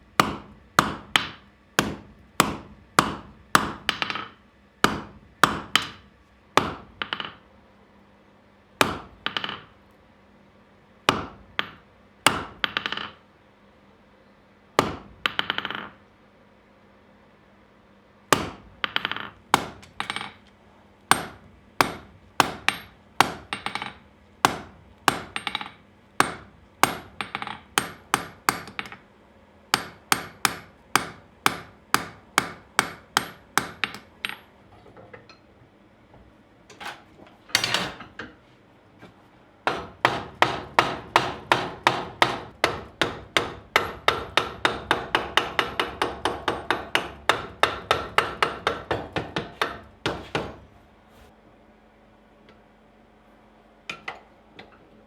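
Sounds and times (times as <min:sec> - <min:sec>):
hammer striking steel on anvil: 0:08.8 - 0:09.6, 0:18.4 - 0:20.4, 0:21.1 - 0:29.0, 0:29.7 - 0:34.5, 0:39.7 - 0:50.6.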